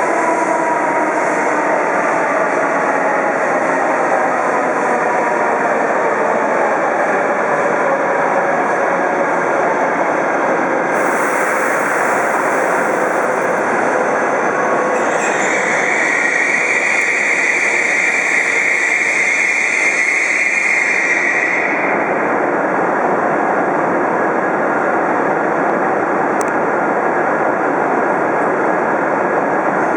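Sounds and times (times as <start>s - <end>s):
train running noise: 0.0s - 29.9s
train whine slowing to a stop: 0.0s - 29.9s
high brake squeal: 10.9s - 13.6s, 14.9s - 21.9s.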